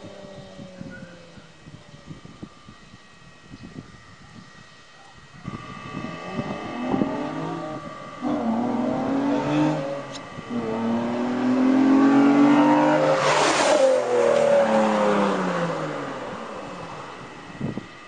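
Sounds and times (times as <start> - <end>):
car engine accelerating: 5.4 - 18.0.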